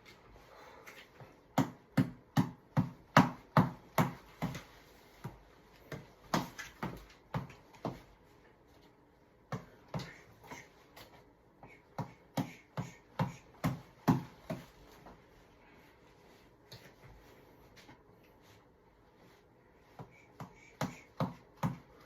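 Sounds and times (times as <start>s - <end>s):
reflex ball being punched: 1.5s - 8.0s, 11.9s - 14.7s, 20.0s - 22.0s.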